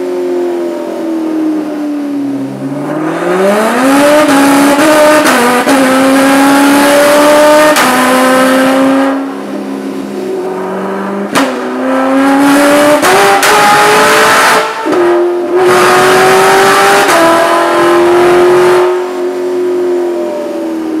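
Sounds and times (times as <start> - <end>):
car engine revving hard: 2.6 - 9.4, 10.2 - 19.4.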